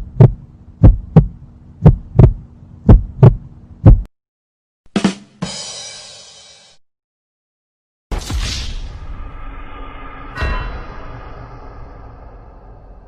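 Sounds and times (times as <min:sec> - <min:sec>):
heartbeat thumps: 0:00.0 - 0:04.1
low hum: 0:00.0 - 0:04.1, 0:08.7 - 0:13.0
short hit: 0:08.1 - 0:13.0.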